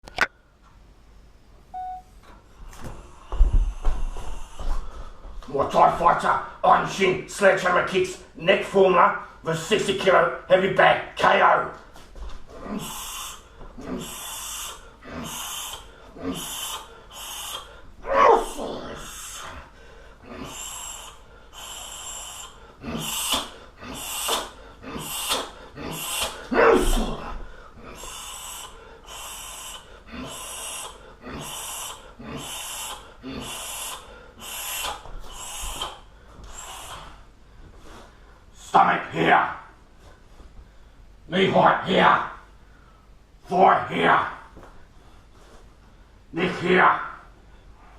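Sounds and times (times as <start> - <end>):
man breathing hard: 2.6 - 5.5, 12.5 - 38.6
sharp hissing exhalations: 12.7 - 26.6, 27.2 - 38.1.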